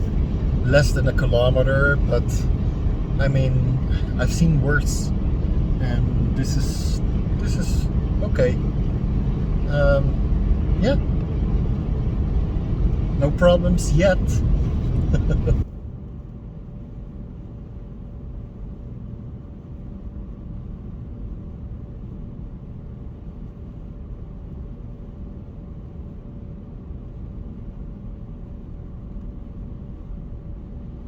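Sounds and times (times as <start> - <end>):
car cabin road and engine rumble: 0.0 - 31.0
faint constant whine: 0.0 - 31.0.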